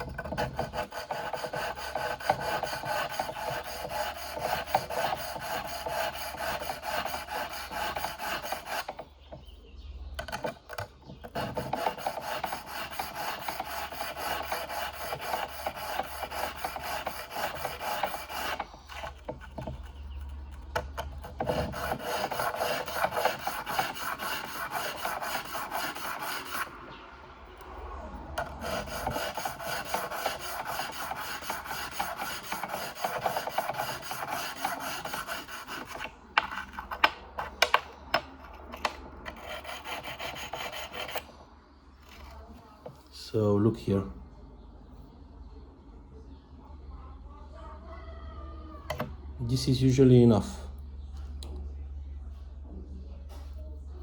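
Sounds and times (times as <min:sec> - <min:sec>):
sharpening stone scraping steel: 0:00.0 - 0:09.0, 0:11.3 - 0:19.3, 0:21.2 - 0:26.7, 0:28.4 - 0:41.2.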